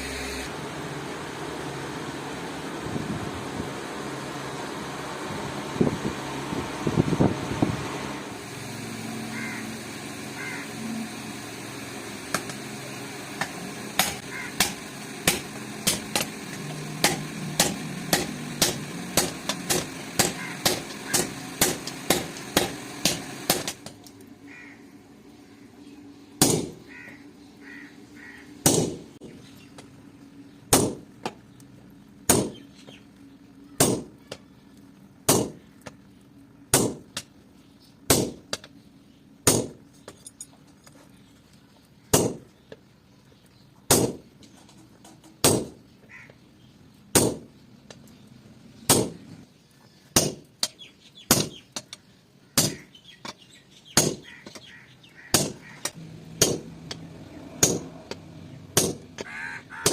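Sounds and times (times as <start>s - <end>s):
hammer striking steel on anvil: 13.4s - 16.3s, 17.0s - 23.8s, 56.4s - 57.0s, 57.6s - 58.2s, 58.8s - 59.3s.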